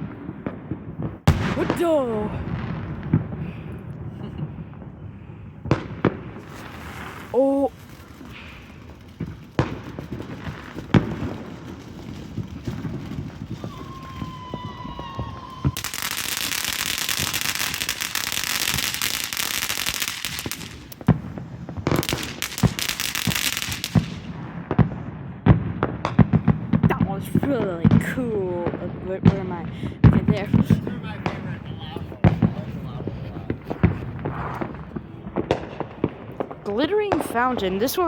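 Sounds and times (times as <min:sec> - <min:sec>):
firework bangs: 0:00.0 - 0:38.0
fireworks crackling: 0:00.0 - 0:38.0
firework hissing: 0:06.0 - 0:24.3
firework whistle: 0:12.9 - 0:21.0.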